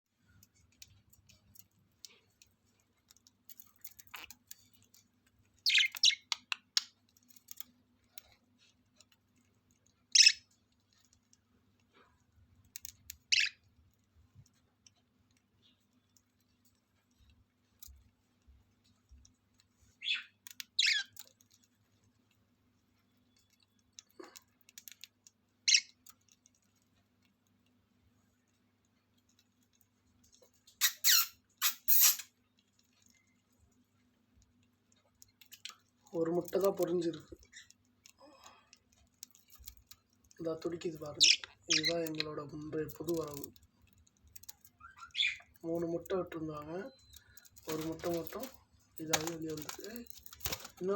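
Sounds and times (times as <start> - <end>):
birds chirping high: 5.6 - 7.6, 10.1 - 10.6, 13.2 - 13.7, 19.9 - 21.4, 30.8 - 32.3, 40.5 - 43.6, 44.4 - 50.9.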